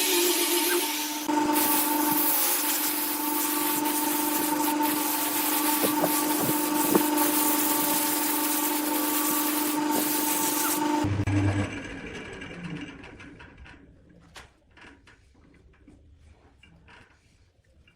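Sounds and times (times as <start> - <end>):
wood lathe humming: 0.0 - 12.4.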